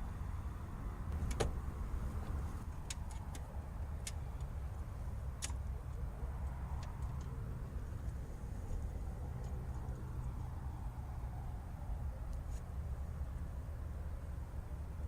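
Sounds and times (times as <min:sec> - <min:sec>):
car doors and contents clicking: 0:01.1 - 0:04.2.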